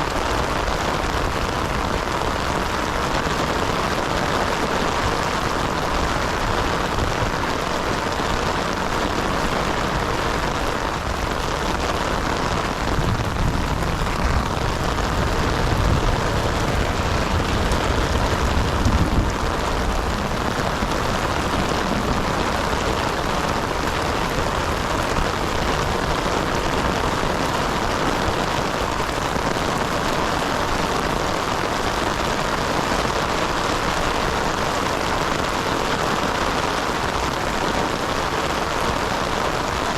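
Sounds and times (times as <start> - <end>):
heavy rain falling: 0.0 - 39.9
low rumble: 12.8 - 24.0.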